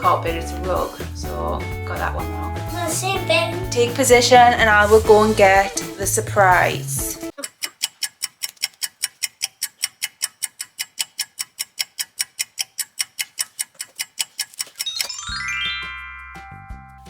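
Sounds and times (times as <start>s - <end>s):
fast even ticking: 7.3s - 15.7s.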